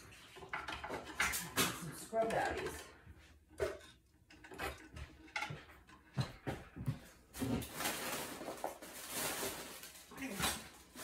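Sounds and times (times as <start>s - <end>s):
light knocks and clatter: 0.1s - 7.6s
rustling: 7.0s - 11.0s.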